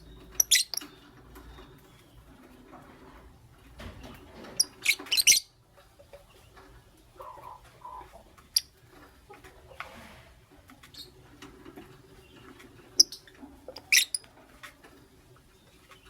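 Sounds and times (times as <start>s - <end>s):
lovebirds chirping: 0.0s - 3.0s, 3.9s - 8.8s, 12.0s - 16.0s.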